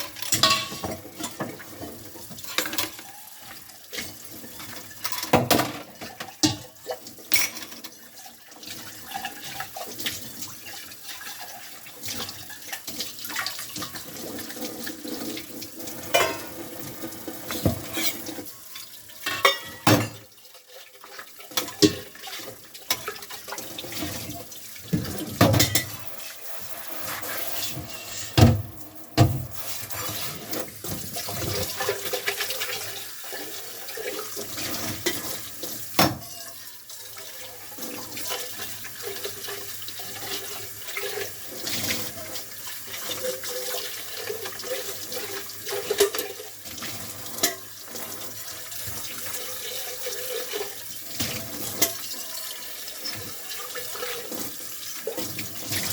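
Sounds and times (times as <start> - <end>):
dishes clunking: 0.2 - 1.6, 16.1 - 16.6, 19.2 - 20.2, 24.9 - 26.0
tap running into sink: 16.1 - 18.2, 27.7 - 31.8, 36.0 - 36.3.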